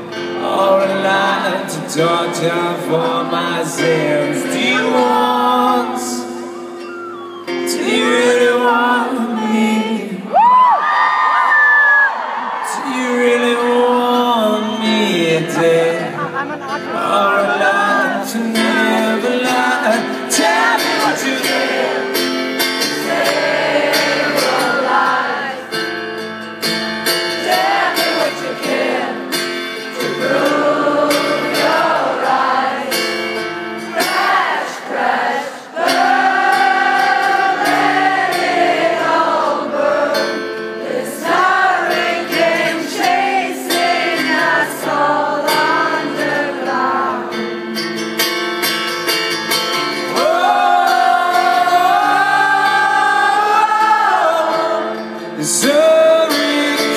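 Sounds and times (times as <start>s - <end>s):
person singing with wavering notes: 0.2s - 10.4s.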